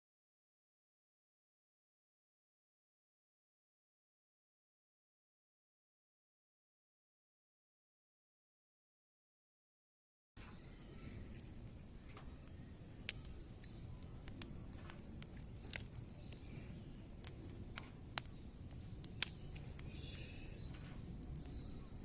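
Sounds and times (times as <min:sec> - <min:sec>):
wood fire crackling: 0:10.4 - 0:22.0.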